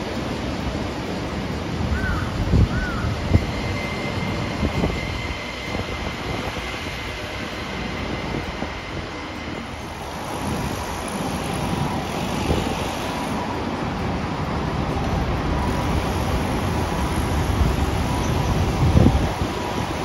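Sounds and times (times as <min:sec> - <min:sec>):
faint high whine: 0:00.0 - 0:20.0
train rumbling past: 0:00.0 - 0:20.0.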